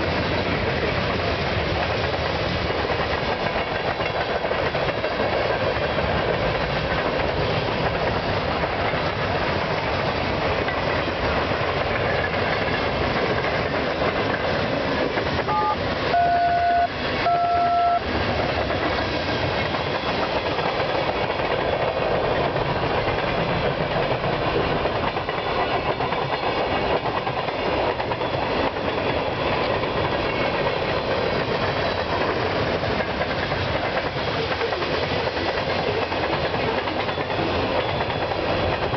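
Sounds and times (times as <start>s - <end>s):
freight cars rolling on rails: 0.0s - 38.9s
train horn blasts: 15.5s - 18.1s.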